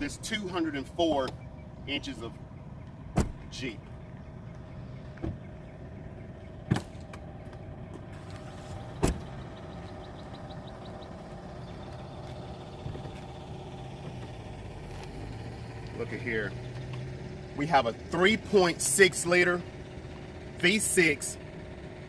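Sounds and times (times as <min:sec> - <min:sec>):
steady low hum: 0:00.0 - 0:22.0
car hood release clunks and clicks: 0:03.1 - 0:03.5, 0:09.0 - 0:09.3.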